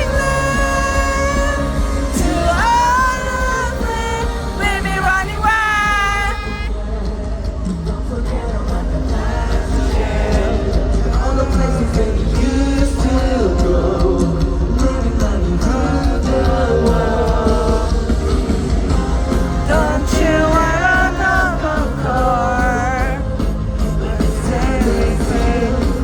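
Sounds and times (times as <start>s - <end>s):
male lead vocal: 0.0s - 26.0s
rock band playing: 0.0s - 26.0s.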